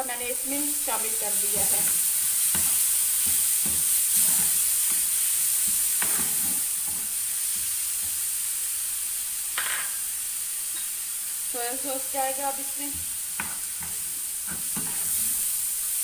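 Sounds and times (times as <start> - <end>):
food sizzling in oil: 0.0 - 16.0
spatula scraping pan: 1.2 - 7.6, 13.4 - 15.5.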